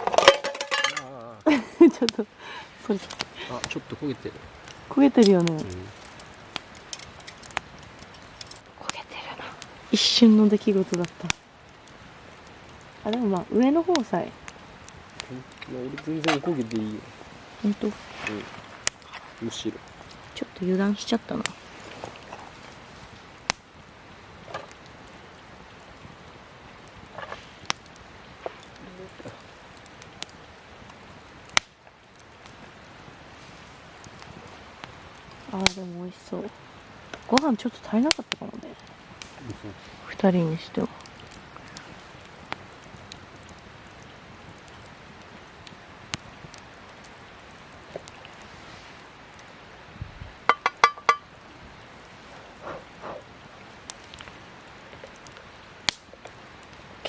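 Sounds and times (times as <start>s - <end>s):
campfire crackling: 0.0s - 57.0s
steady hiss: 0.0s - 57.0s
metal utensil clinking on cookware: 0.1s - 1.1s
sharp pop of fire: 15.1s - 16.8s.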